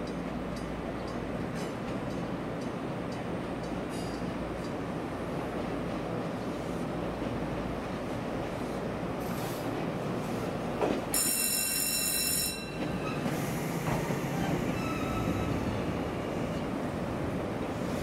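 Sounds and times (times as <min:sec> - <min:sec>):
train rumbling: 0:00.0 - 0:18.0
high wheel squeal: 0:14.7 - 0:15.6.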